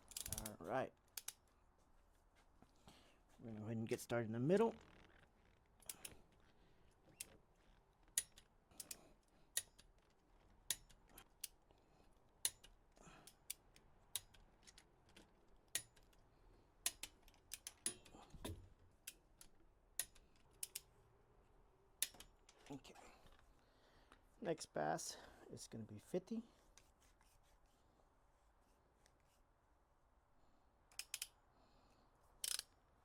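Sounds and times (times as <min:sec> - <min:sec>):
torque wrench clicking: 0:00.1 - 0:00.5, 0:30.9 - 0:31.3, 0:32.4 - 0:32.7.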